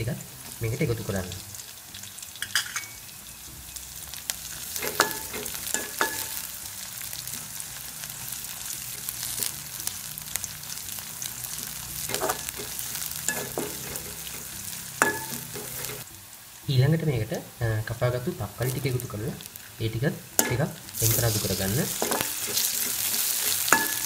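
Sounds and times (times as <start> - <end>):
food sizzling in hot oil: 0.0 - 24.0
spatula clinking against metal pan: 4.8 - 6.4, 15.0 - 16.0, 22.0 - 24.0.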